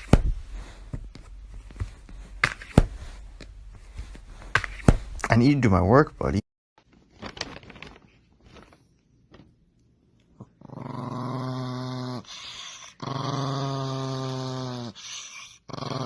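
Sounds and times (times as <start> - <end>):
dog growling low: 10.4 - 16.0.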